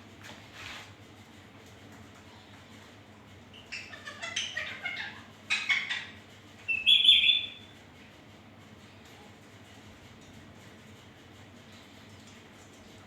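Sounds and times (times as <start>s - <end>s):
parakeet chattering: 3.6s - 7.3s.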